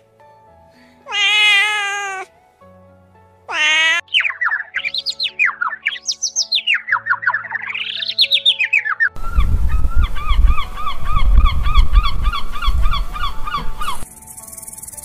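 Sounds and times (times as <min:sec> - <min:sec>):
rapid sweeping chirps: 0:14.0 - 0:15.0.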